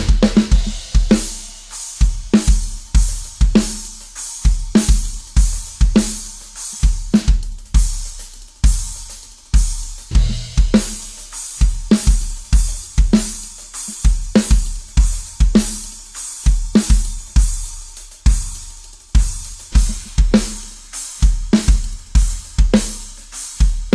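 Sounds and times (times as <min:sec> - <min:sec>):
bass drum thuds: 0:00.0 - 0:01.2, 0:10.1 - 0:10.9
snare drum hits: 0:00.0 - 0:01.5
cymbals and hi-hat: 0:00.0 - 0:23.9.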